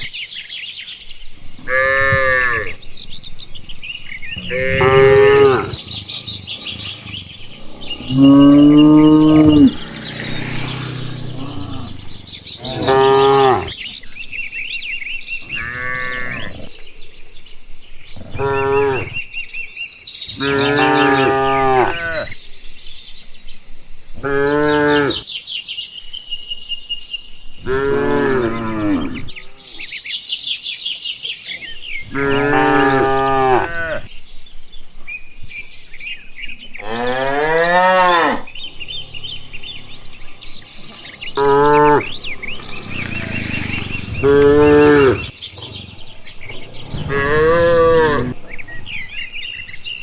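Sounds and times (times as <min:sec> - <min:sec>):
birds chirping: 0:00.0 - 0:50.0
cows mooing: 0:01.6 - 0:13.9, 0:15.4 - 0:16.7, 0:18.2 - 0:19.3, 0:20.4 - 0:22.4, 0:24.2 - 0:25.2, 0:27.6 - 0:29.9, 0:32.1 - 0:34.1, 0:36.7 - 0:49.8.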